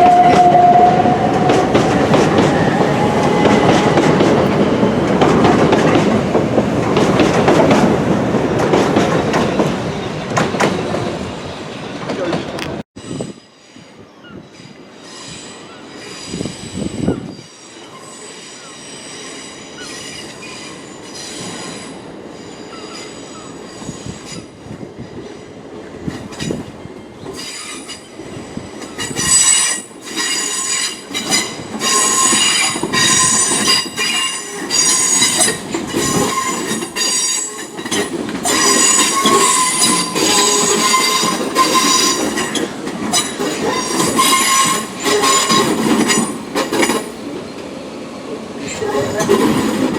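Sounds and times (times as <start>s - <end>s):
low train rumble: 0.0s - 49.9s
train wheels squealing: 13.0s - 25.5s, 26.1s - 47.6s.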